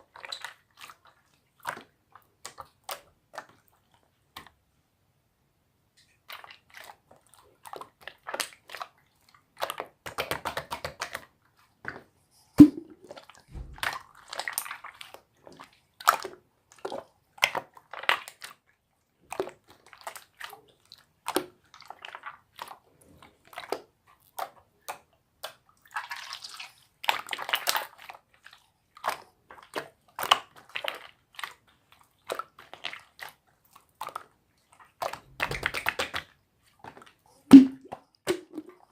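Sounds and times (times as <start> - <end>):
slime squelching by hand: 0.0 - 4.6, 6.0 - 38.9
slime pop: 12.6 - 13.0, 37.5 - 38.7.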